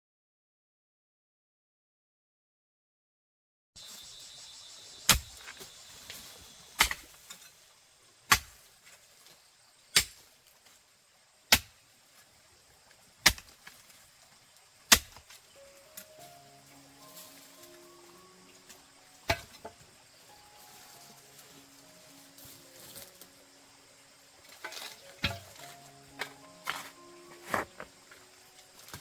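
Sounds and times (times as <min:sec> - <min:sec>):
insects hissing: 0:03.8 - 0:29.0
hoe chopping into earth: 0:05.1 - 0:06.2, 0:06.8 - 0:07.5, 0:08.3 - 0:09.0, 0:09.9 - 0:10.3, 0:11.5 - 0:11.8, 0:13.2 - 0:13.9, 0:14.9 - 0:15.4, 0:19.3 - 0:19.8, 0:24.6 - 0:27.9.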